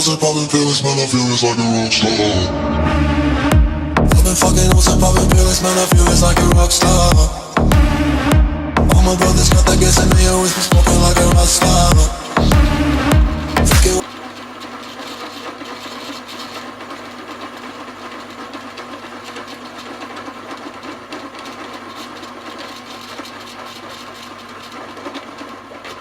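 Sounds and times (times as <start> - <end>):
lathe motor hum: 2.2 - 26.0
fast rattle of lathe cutting: 4.1 - 7.5, 9.0 - 26.0.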